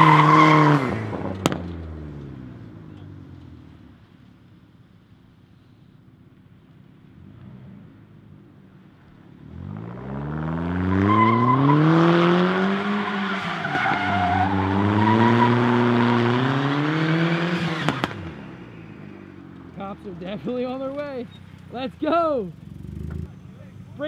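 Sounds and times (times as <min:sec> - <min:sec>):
car engine revving: 0:00.0 - 0:03.7, 0:09.3 - 0:24.0
tyres squealing: 0:12.7 - 0:15.8.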